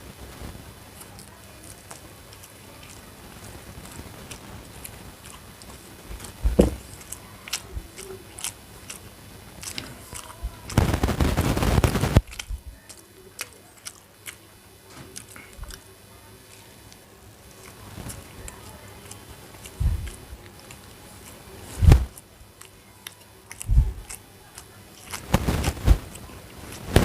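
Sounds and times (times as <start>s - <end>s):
mouth clicks and smacks: 1.0s - 15.9s, 17.6s - 27.0s
person chewing and biting: 1.1s - 15.8s, 16.9s - 27.0s
thump: 6.4s - 6.8s
loud burst of noise: 10.7s - 12.3s.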